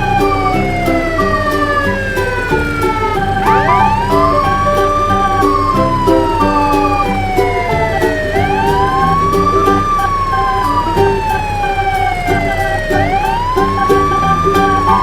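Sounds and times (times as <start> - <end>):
background music with steady beat: 0.0 - 15.0
siren wailing: 3.4 - 6.1.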